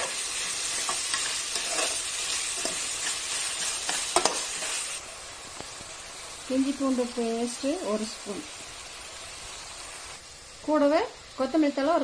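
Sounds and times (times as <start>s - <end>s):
metal spatula scraping pot: 0.0s - 4.8s
masala sizzling in oil: 0.0s - 12.0s.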